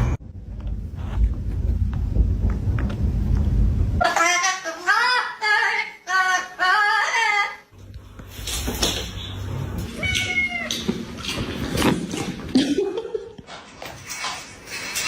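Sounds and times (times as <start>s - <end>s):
low hum: 0.0s - 4.0s.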